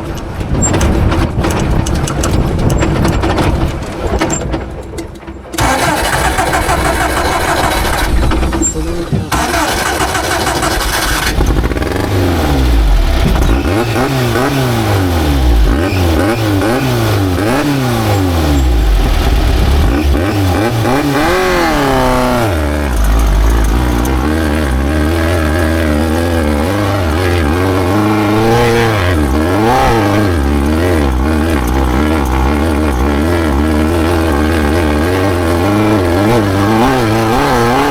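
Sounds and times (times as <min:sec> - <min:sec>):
race vehicle engine revving: 0:00.0 - 0:37.9.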